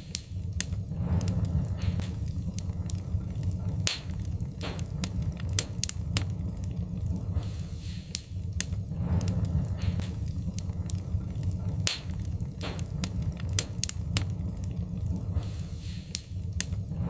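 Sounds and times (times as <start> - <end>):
low rumble of flames: 0.0 - 17.0
soft hissing of fire: 0.0 - 17.0
wood fire crackling: 0.0 - 17.0.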